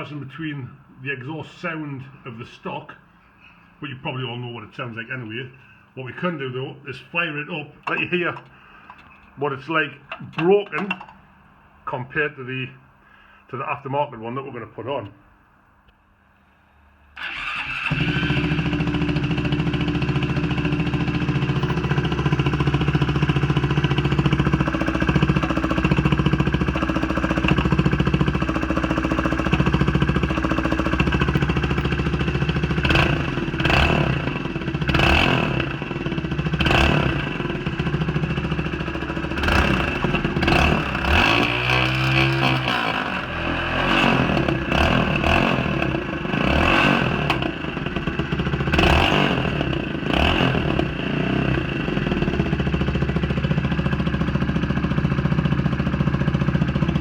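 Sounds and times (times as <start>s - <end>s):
motorcycle engine starting and idling: 7.7s - 11.4s, 17.2s - 57.0s
motorcycle engine revving: 17.2s - 57.0s.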